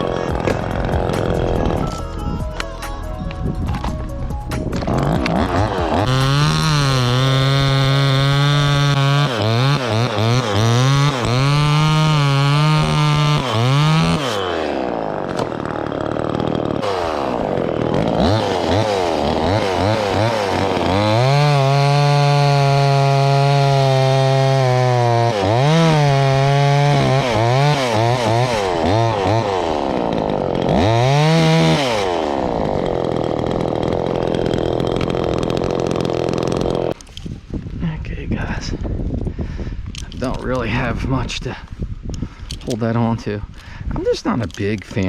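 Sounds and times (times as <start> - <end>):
chainsaw engine revving: 0.0 - 2.0, 4.8 - 37.0.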